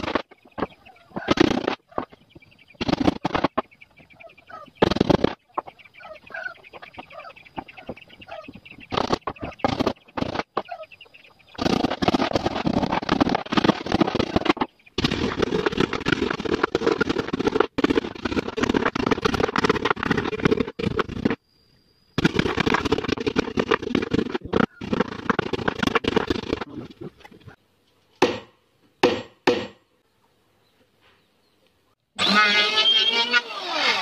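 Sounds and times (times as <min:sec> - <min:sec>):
chickens clucking: 0:00.0 - 0:13.1.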